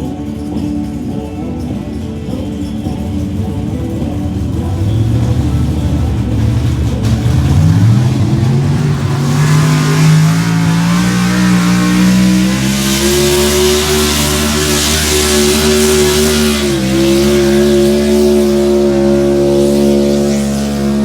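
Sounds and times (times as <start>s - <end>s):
truck engine running under load: 2.1s - 21.0s
loud hiss: 7.4s - 21.0s.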